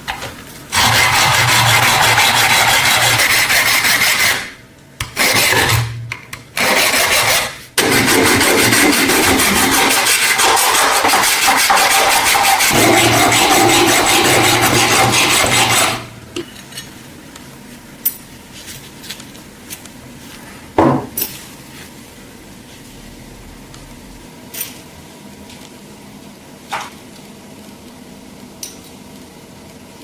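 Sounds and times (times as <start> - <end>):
power tool grinding: 0.7 - 4.5, 6.6 - 16.1.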